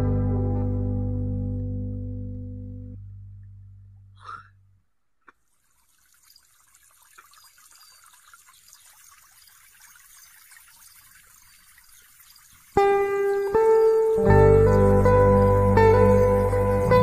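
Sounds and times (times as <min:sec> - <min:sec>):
held music chord: 0:00.0 - 0:03.7, 0:13.0 - 0:17.0
water trickling: 0:05.3 - 0:17.0.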